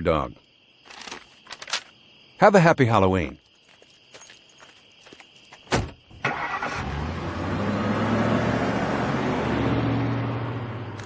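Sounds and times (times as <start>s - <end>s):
car engine starting and running: 6.1s - 11.0s.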